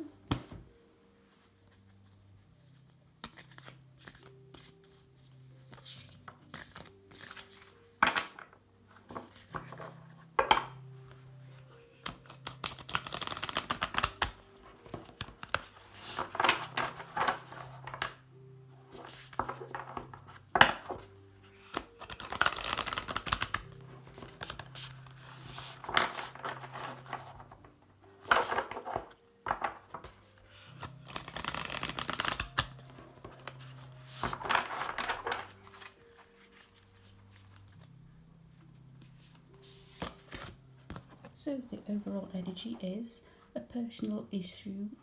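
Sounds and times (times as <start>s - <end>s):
cards being shuffled: 1.6s - 8.5s, 9.1s - 10.1s, 12.0s - 18.2s, 18.9s - 37.9s, 38.6s - 41.4s.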